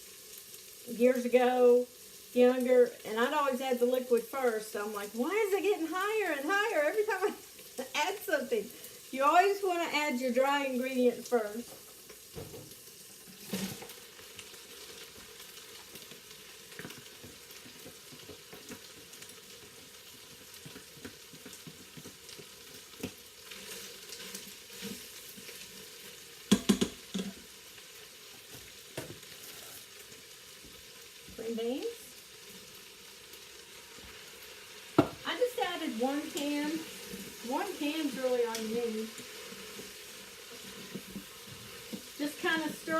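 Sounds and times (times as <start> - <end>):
chicken sizzling in a pot: 0.0 - 42.9
utensil stirring and knocking pot: 20.6 - 23.2, 26.5 - 27.4.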